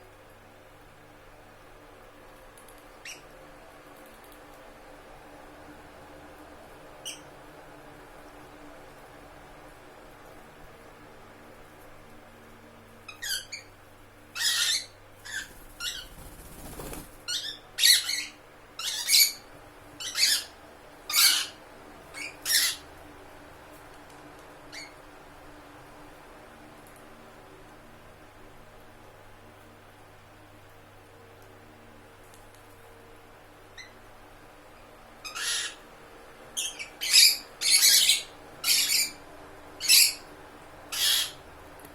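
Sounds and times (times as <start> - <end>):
lovebird squawking: 14.4 - 19.4, 21.1 - 22.8, 35.2 - 35.8, 36.6 - 39.2, 39.8 - 40.3, 40.9 - 41.4
faint bird chirp: 14.4 - 22.8.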